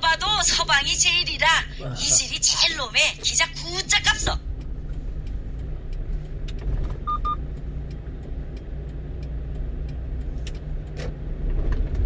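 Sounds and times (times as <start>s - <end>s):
truck engine and road rumble: 0.0s - 12.0s
short electronic beeps: 7.0s - 7.4s.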